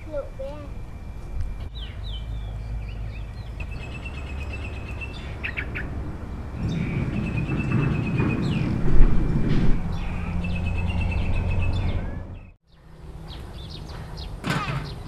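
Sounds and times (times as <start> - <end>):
low rumble: 0.0 - 12.6
loud low noise: 0.0 - 13.1
small birds chirping: 1.6 - 6.0, 6.6 - 8.8, 9.9 - 15.0.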